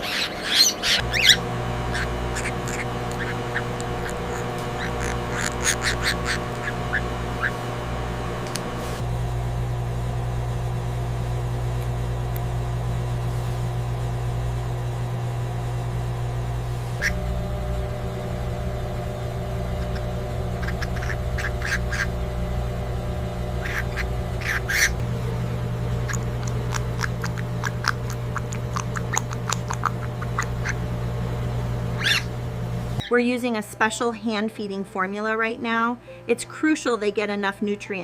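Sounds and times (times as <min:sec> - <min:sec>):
parrot chicks begging calls: 0:00.0 - 0:08.8, 0:17.0 - 0:17.2, 0:19.7 - 0:22.3, 0:23.6 - 0:25.1, 0:25.8 - 0:30.9, 0:31.9 - 0:32.3
steady low hum: 0:00.0 - 0:37.8.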